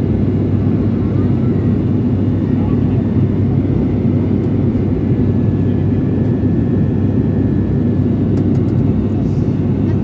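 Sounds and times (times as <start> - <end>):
airliner engines droning in cabin: 0.0 - 10.0.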